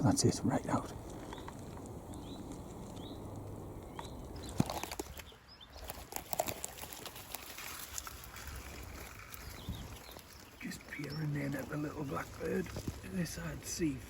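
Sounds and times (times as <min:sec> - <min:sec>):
small bird chirping: 0:00.8 - 0:06.1, 0:07.9 - 0:13.8
rustling and cracking twigs: 0:00.8 - 0:14.0
twig snapping: 0:01.0 - 0:09.5.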